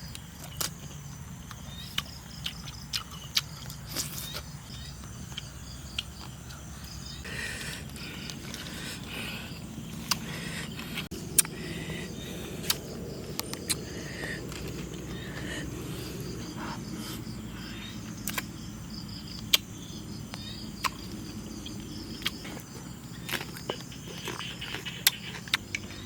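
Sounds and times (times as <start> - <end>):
faint insect chirping: 0.0 - 26.0
low rumble: 4.8 - 19.4.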